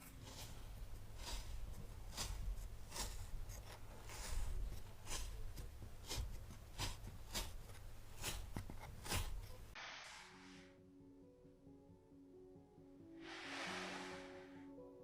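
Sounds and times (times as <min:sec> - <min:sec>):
knife slicing through sand: 0:00.2 - 0:07.6, 0:08.2 - 0:10.7, 0:13.2 - 0:14.5.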